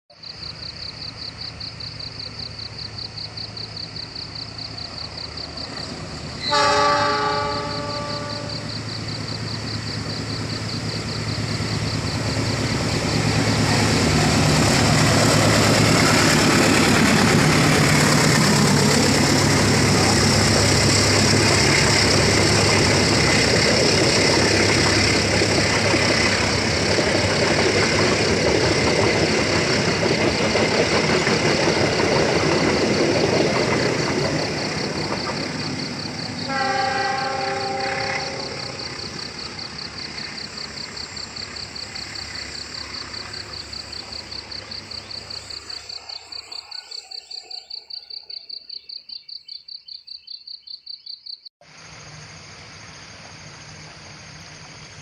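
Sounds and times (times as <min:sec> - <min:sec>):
train passing: 0:00.2 - 0:49.1, 0:51.6 - 0:55.0
train horn chord: 0:06.4 - 0:08.8, 0:36.4 - 0:39.0.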